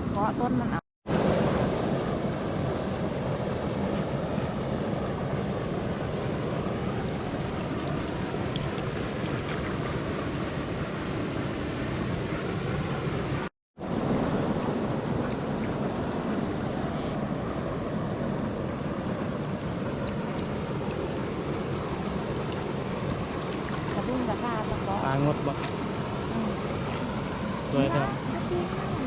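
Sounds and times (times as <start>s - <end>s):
stormwater pouring from a pipe: 18.5s - 29.0s.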